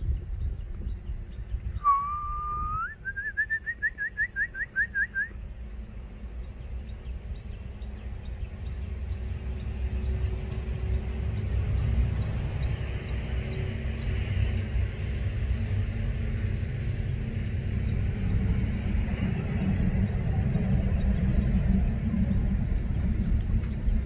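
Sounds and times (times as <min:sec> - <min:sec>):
bird calling: 0:01.7 - 0:05.4
low rumble: 0:08.1 - 0:24.0.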